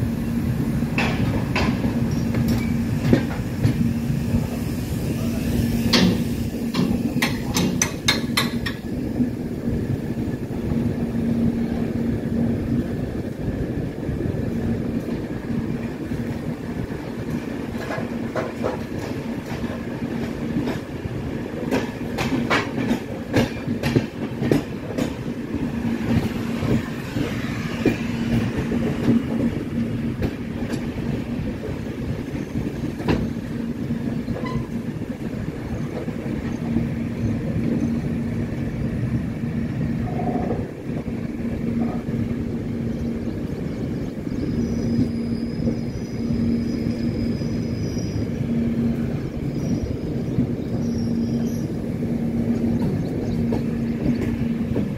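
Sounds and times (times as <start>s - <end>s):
train wheels rumbling on track: 0.0s - 54.9s
wheels clicking over rail joints: 5.9s - 9.0s, 16.1s - 33.4s.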